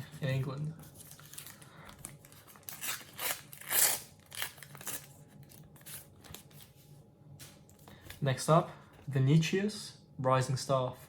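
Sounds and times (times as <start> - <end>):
foil sticker packet crinkling: 0.3 - 6.8.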